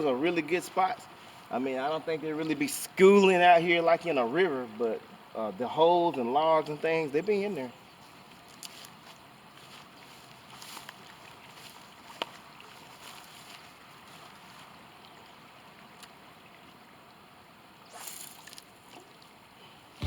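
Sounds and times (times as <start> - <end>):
flowing creek water: 0.0 - 20.0
light wind: 0.0 - 20.0
soft rustles: 8.0 - 14.8.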